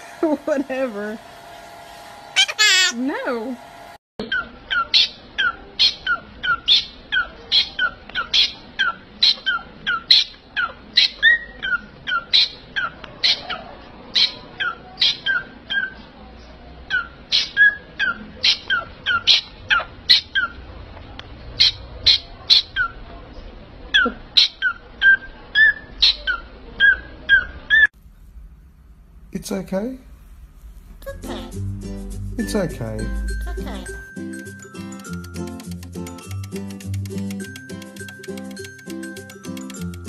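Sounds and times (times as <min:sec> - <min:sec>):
parrot sharp calls: 0:04.3 - 0:16.0, 0:16.9 - 0:20.6, 0:21.6 - 0:23.0.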